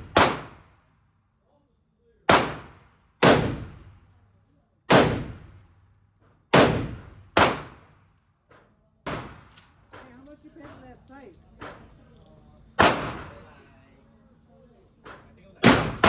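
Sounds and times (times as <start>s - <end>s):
gunshots echoing indoors: 0.0s - 0.7s, 2.3s - 4.1s, 4.9s - 5.6s, 6.5s - 7.9s, 9.0s - 9.7s, 12.8s - 13.4s, 15.6s - 16.0s.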